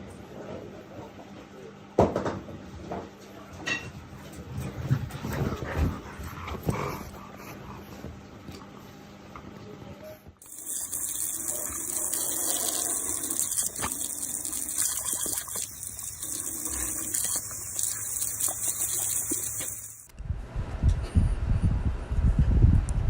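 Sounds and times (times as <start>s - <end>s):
running water rushing: 10.4s - 20.1s.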